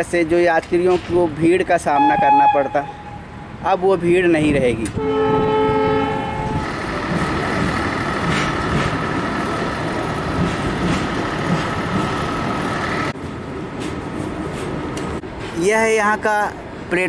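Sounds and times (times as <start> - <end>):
train wagons rumbling past: 0.0 - 17.0
locomotive horn blast: 2.0 - 3.3, 5.0 - 6.7.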